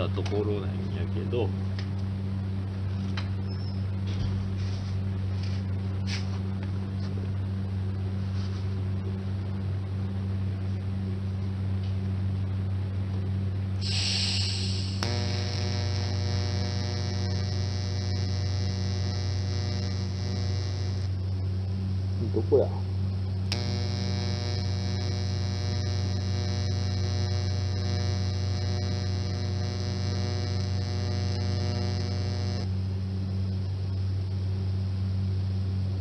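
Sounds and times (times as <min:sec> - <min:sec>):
higher electrical buzz: 0:00.0 - 0:06.5, 0:13.6 - 0:36.0
electrical mains hum: 0:00.0 - 0:36.0
short hiss: 0:13.8 - 0:15.0
click: 0:14.9 - 0:15.9, 0:23.5 - 0:23.9.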